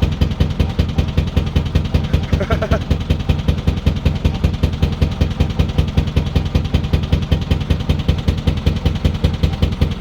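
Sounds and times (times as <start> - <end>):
diesel engine pulsing: 0.0 - 10.0.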